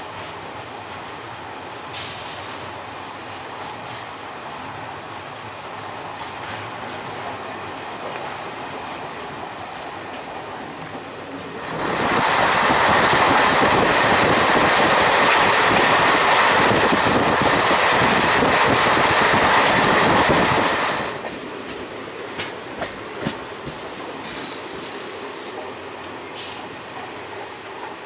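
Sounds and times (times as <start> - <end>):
train running on rails: 0.0 - 28.0
train wheel squeaks: 2.4 - 3.1, 23.2 - 28.0.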